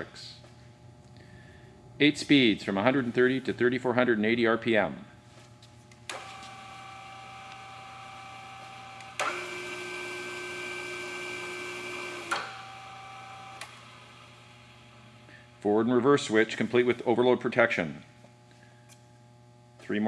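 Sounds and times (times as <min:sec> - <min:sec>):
drill press gear whine: 0:06.1 - 0:17.0.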